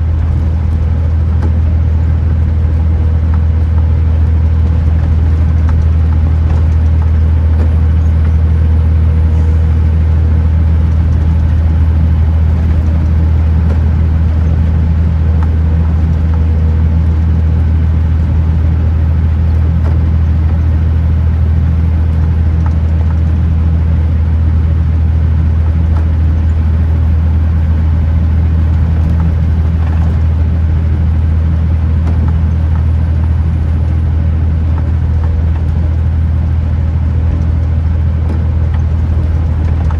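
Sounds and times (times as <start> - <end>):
road noise: 0.0 - 39.9
truck diesel engine cruising: 0.0 - 39.9.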